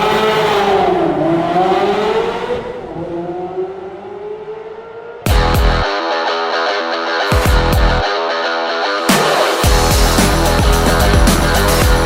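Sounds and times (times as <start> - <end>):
car engine revving: 0.0 - 5.8
loud electronic rock music: 5.3 - 12.0.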